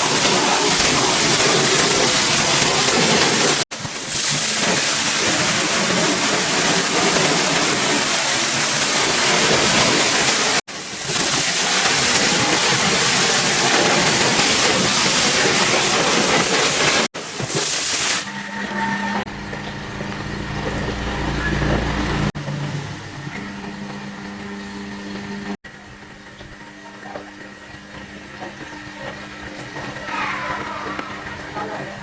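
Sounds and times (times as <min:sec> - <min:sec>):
pressure washer spray hissing: 0:00.0 - 0:18.4
steady mechanical hum: 0:18.2 - 0:32.0.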